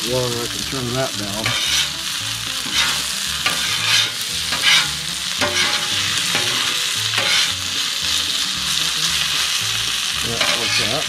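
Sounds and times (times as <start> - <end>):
food sizzling on grill: 0.0 - 11.0
utensil scraping strokes: 1.4 - 2.0, 2.6 - 7.7, 10.2 - 11.0.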